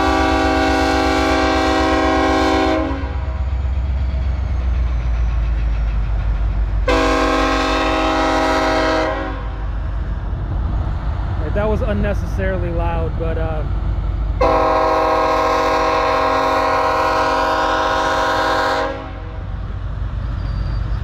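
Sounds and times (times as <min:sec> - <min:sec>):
locomotive air horn blasts: 0:00.0 - 0:03.4, 0:06.9 - 0:09.6, 0:14.4 - 0:19.5
freight train rumbling: 0:00.0 - 0:21.0.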